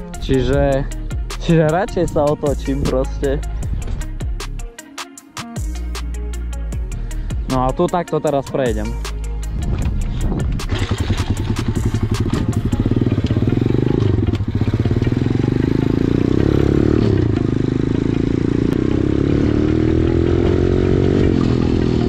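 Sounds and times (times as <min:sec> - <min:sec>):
motorbike engine revving: 0:10.2 - 0:22.0.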